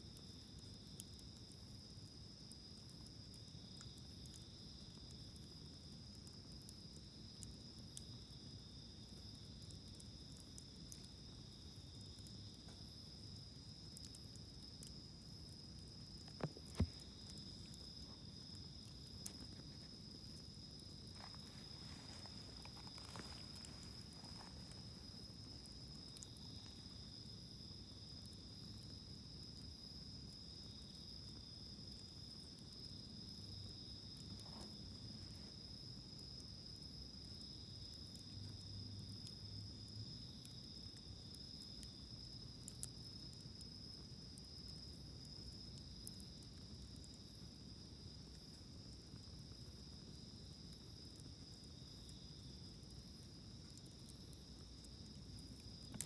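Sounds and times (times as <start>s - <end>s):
crickets trilling: 0.0s - 56.0s
soft pulsing insect call: 0.0s - 56.0s
small sharp pops: 15.8s - 26.8s.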